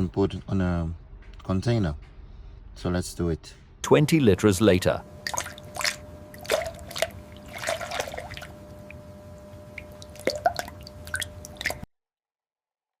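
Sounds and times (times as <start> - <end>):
faint steady hum: 0.0 - 11.9
petrol dripping: 5.0 - 11.9.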